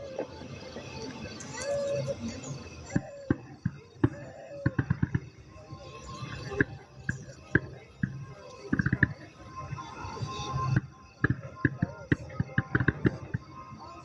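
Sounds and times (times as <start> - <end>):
background music: 0.0 - 14.0
fireworks banging: 3.0 - 5.3, 6.4 - 9.3, 10.6 - 13.5.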